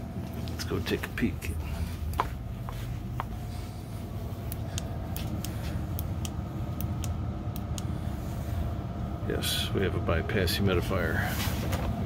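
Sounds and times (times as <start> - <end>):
faint hum: 0.0 - 12.0
steady low rumble: 0.0 - 12.0
light clicks from footsteps and handling: 4.4 - 7.9.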